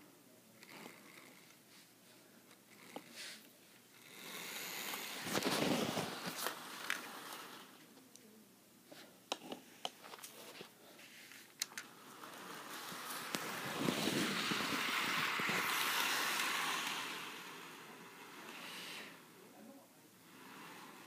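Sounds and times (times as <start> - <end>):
model train rushing on track: 12.0 - 19.3, 20.2 - 21.0.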